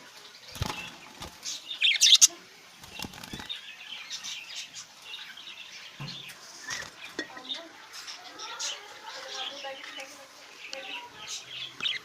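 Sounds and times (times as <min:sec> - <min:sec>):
budgies chirping: 0:00.0 - 0:12.0
wings flapping: 0:00.5 - 0:01.6, 0:02.8 - 0:03.6.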